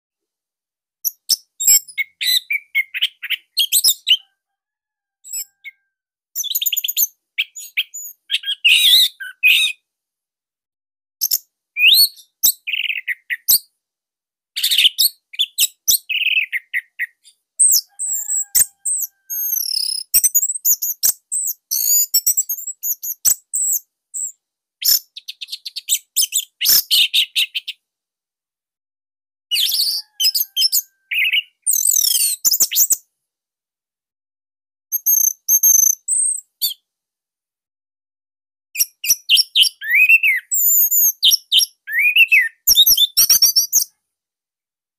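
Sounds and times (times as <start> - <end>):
bird singing rapid chirps: 1.1 - 4.3, 6.4 - 9.8, 11.2 - 13.6, 14.6 - 27.8, 29.5 - 33.0, 38.8 - 43.9.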